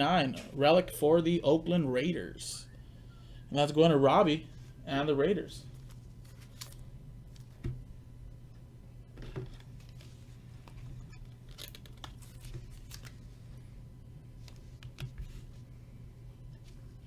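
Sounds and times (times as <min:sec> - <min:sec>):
steady low hum: 0:00.0 - 0:17.0
cards rustling and clicking: 0:05.7 - 0:07.7, 0:09.4 - 0:13.5.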